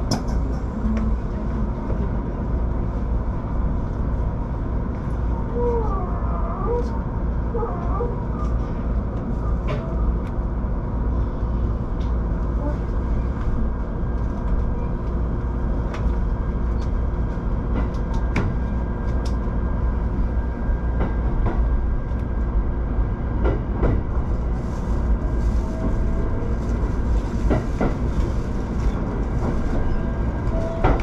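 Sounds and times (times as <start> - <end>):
train low rumble: 0.0 - 31.0.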